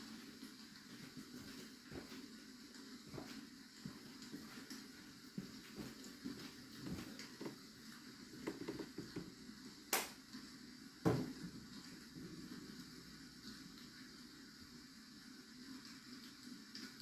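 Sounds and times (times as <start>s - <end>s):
rain: 0.0s - 17.0s
desk work taps and clicks: 11.1s - 11.4s.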